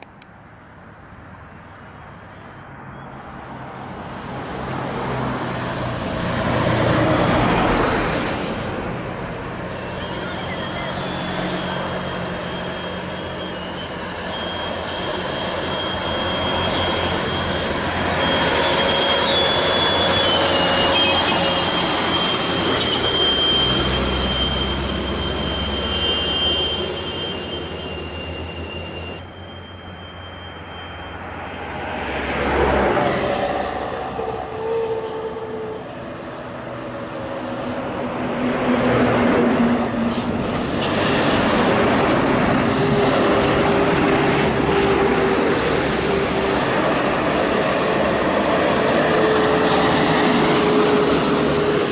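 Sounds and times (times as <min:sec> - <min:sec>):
truck diesel engine labouring: 0:04.8 - 0:51.9
thin high whine: 0:09.7 - 0:31.8.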